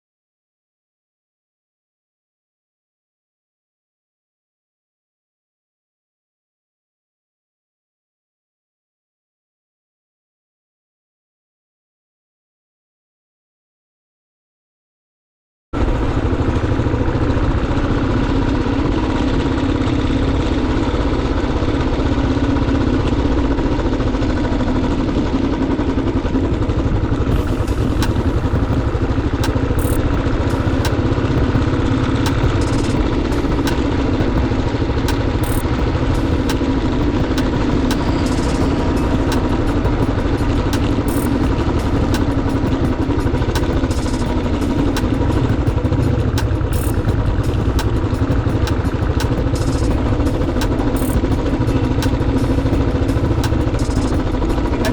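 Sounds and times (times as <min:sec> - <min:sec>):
motorcycle engine running: 0:15.8 - 0:54.9
sharp ticks and clicks: 0:27.1 - 0:54.9.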